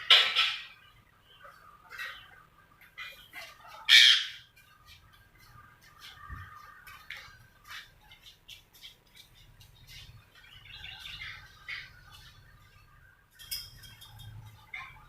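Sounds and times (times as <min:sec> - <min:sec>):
bird squawking and chirping: 0:00.0 - 0:04.8, 0:09.9 - 0:13.0.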